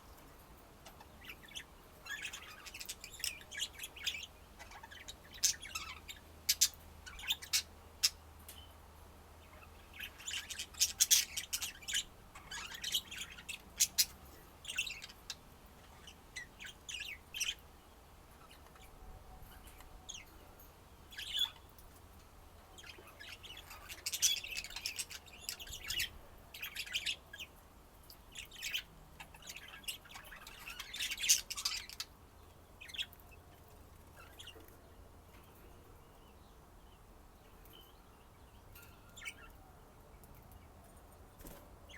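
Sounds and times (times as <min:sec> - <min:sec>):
budgerigars chirping: 0:00.8 - 0:08.2, 0:09.6 - 0:17.6, 0:22.8 - 0:27.5, 0:28.4 - 0:32.2.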